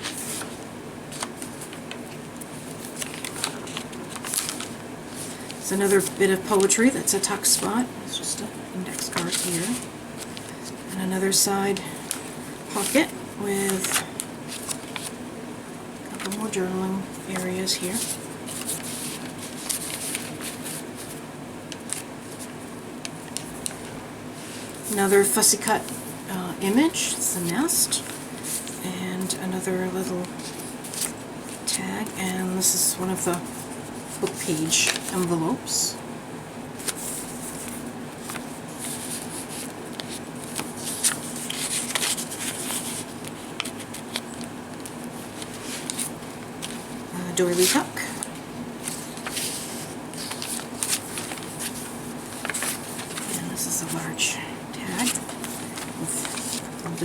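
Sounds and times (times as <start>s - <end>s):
paper pages rustling: 0.0s - 7.9s, 8.9s - 15.2s, 16.1s - 26.2s, 26.8s - 28.8s, 30.2s - 35.6s, 36.7s - 57.0s
steady low hum: 0.0s - 57.0s.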